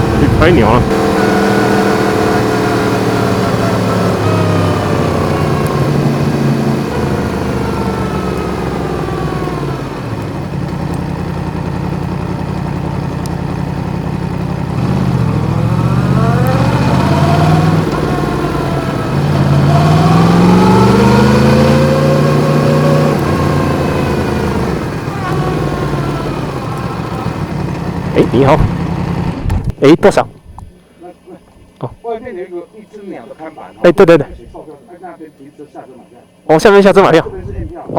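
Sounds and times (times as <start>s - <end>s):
motorcycle engine revving: 0.0s - 29.8s.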